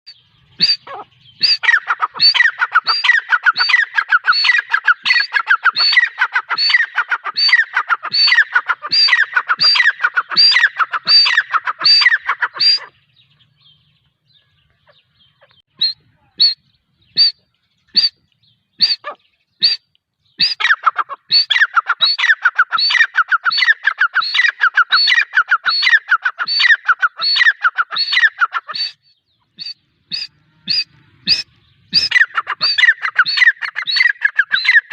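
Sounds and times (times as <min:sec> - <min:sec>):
francolin calling shrill notes: 0:00.1 - 0:13.0.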